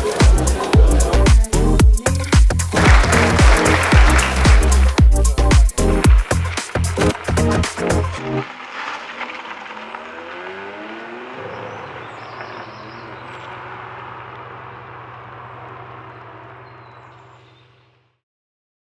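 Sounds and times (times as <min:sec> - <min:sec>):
sports car engine revving: 0:09.3 - 0:17.8.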